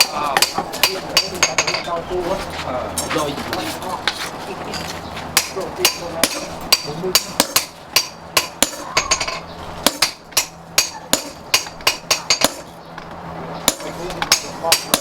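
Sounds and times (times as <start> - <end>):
hammer striking steel on anvil: 0.0 - 1.8, 5.4 - 12.7, 13.6 - 15.0.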